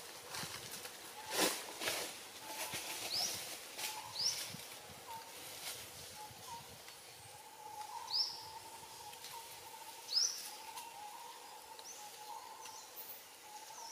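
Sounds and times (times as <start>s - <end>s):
outdoor background noise: 0.0s - 13.9s
birds calling: 1.0s - 5.4s, 6.0s - 13.9s.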